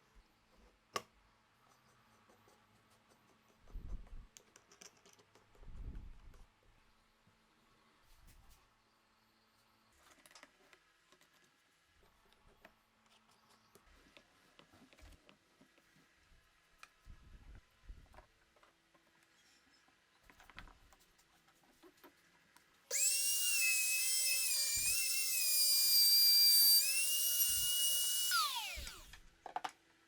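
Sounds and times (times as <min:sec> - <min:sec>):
electric power tool whining: 0:22.9 - 0:29.2.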